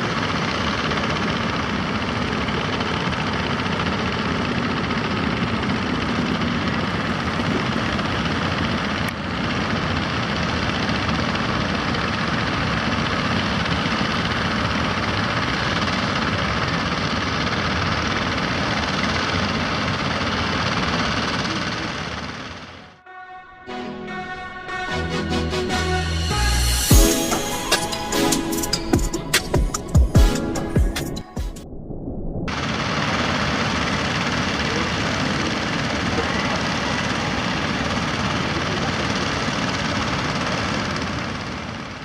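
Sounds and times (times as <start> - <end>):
boat engine running: 0.0 - 22.8, 32.5 - 42.0.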